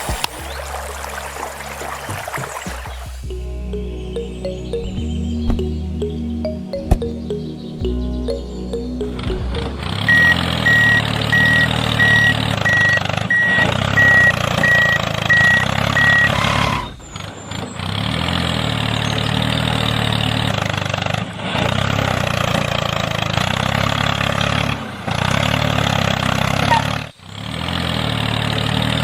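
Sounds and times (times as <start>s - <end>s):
engine running: 0.0s - 29.0s
reverse warning beeper: 9.0s - 17.0s.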